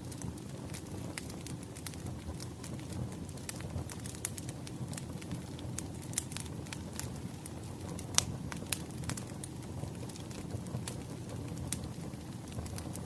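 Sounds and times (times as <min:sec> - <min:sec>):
firewood crackling: 0:00.0 - 0:13.0.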